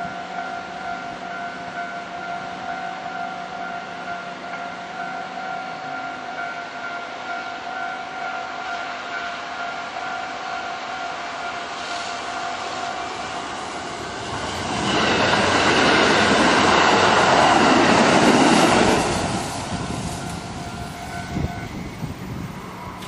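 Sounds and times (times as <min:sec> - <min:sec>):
level crossing warning bell: 0:00.0 - 0:13.0, 0:19.7 - 0:23.0
electric train rushing past: 0:00.0 - 0:23.0.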